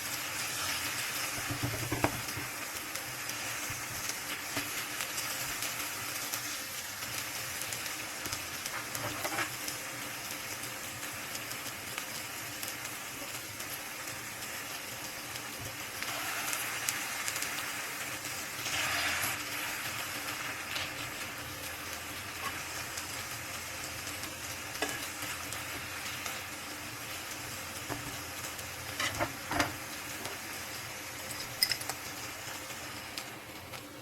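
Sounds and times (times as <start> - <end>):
oil sizzling in a frying pan: 0.0 - 34.0.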